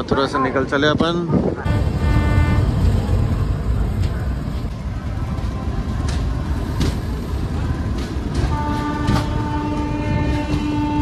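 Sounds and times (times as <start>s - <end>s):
train rumbling: 0.0s - 11.0s
train horn: 1.6s - 2.9s, 8.4s - 11.0s.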